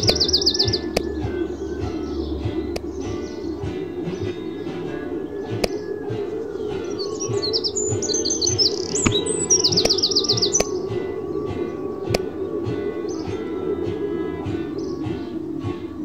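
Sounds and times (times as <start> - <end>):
bird trill: 0.0 - 16.0
birds chirping: 0.0 - 16.0
low background sound: 0.0 - 16.0.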